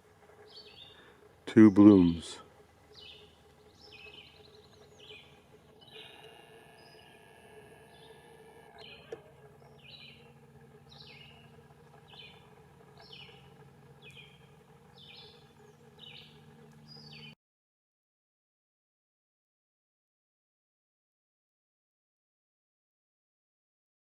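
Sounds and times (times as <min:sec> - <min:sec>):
faint low hum: 0:00.0 - 0:17.4
bird chirping: 0:00.4 - 0:01.1, 0:02.8 - 0:17.4.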